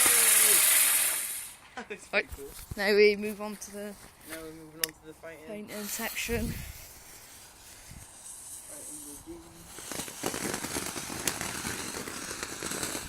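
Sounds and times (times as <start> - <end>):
firework fountain hissing spray: 0.0 - 1.6, 5.7 - 13.0
dense crackling: 7.1 - 13.0.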